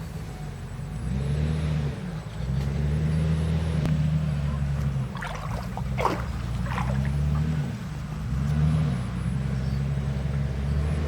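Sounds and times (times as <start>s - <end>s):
diesel engine running: 0.0s - 11.0s
water splashing: 4.7s - 8.2s.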